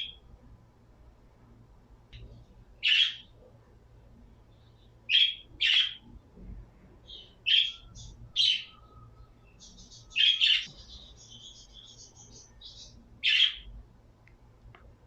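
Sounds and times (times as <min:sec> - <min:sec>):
pet birds calling: 0:02.8 - 0:03.4, 0:04.5 - 0:06.1, 0:07.0 - 0:13.7.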